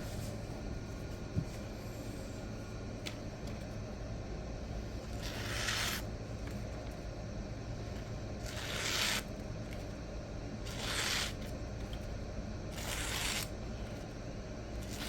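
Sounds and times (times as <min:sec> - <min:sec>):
knife slicing through paper: 0:05.2 - 0:06.0, 0:08.4 - 0:09.3, 0:10.7 - 0:11.4, 0:12.7 - 0:13.5.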